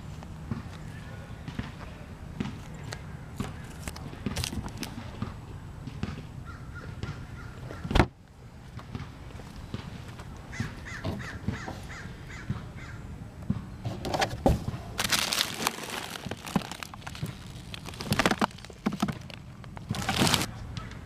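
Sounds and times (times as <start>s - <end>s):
rustling crinkling noise: 2.6s - 5.2s, 13.9s - 20.6s
harsh cawing bird calls: 6.4s - 8.0s, 10.5s - 13.1s.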